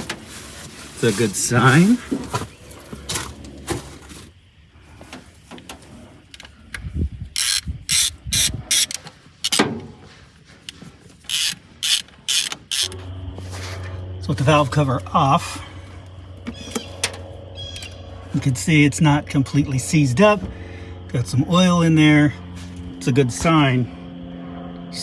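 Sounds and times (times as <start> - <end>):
low steady hum: 0.0 - 25.0
ratchet wrench clicking: 7.4 - 9.6, 11.3 - 13.0.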